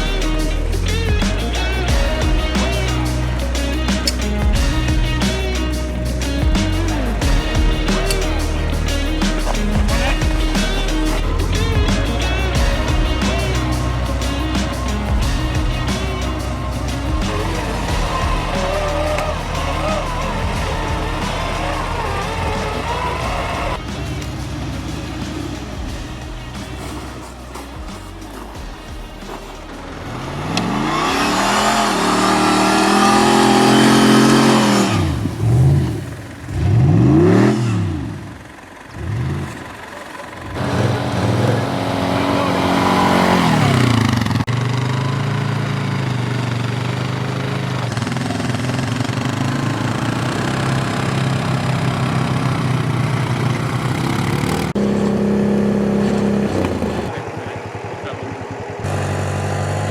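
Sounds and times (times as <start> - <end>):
off-road engine revving: 0.0 - 59.9.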